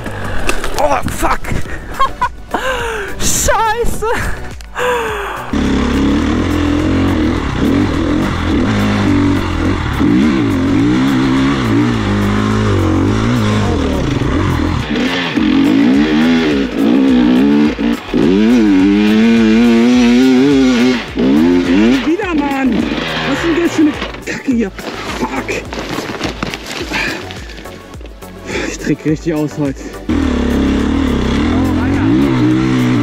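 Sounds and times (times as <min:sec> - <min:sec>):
motorcycle engine revving: 0:05.5 - 0:27.9, 0:29.9 - 0:33.0.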